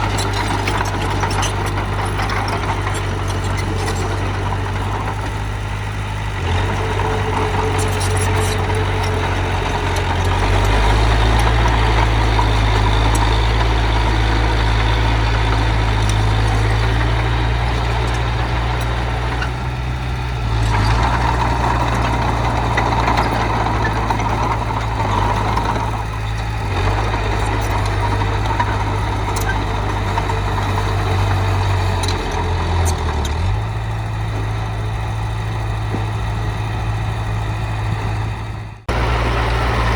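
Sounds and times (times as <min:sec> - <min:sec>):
heavy diesel machine engine: 0:00.0 - 0:39.9.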